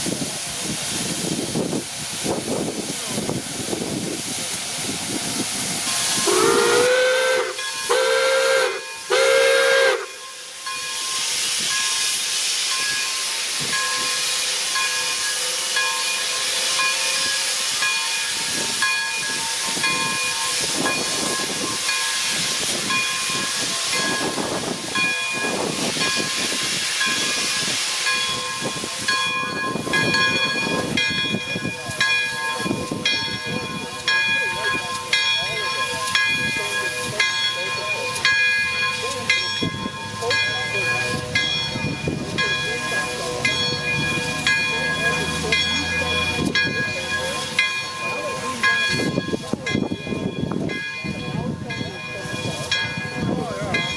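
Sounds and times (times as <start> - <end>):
steam hissing: 0.0 - 53.9
locomotive bell ringing: 5.8 - 53.9
steam locomotive whistle: 6.0 - 10.2.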